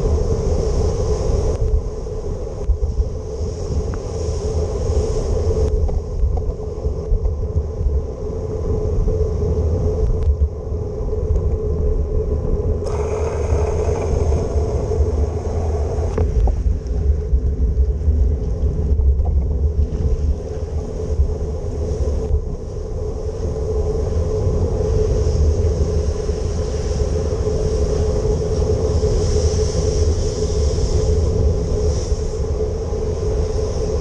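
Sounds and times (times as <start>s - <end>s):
wind rumble on microphone: 0.0s - 34.0s
road and traffic noise: 12.8s - 21.5s.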